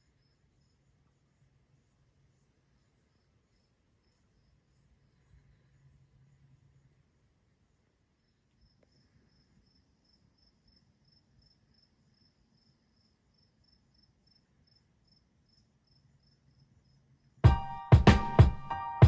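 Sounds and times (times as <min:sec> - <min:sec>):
insect chirping: 0:00.0 - 0:17.4
loud music with drum beat: 0:17.5 - 0:18.7.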